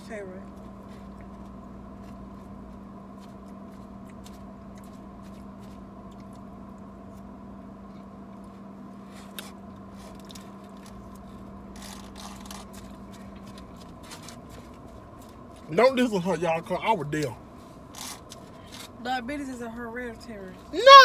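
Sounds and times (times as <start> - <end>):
car cabin hum: 0.0 - 21.0
chewing crunchy salad: 0.5 - 7.3, 8.0 - 15.7.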